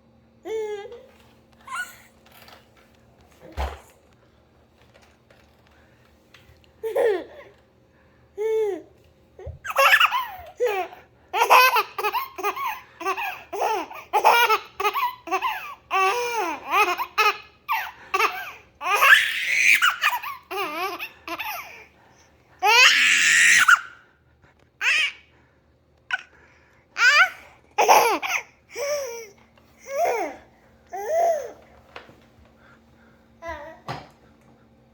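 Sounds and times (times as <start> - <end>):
baby laughing: 1.7 - 2.1, 6.8 - 7.6, 9.6 - 21.8, 27.0 - 31.6.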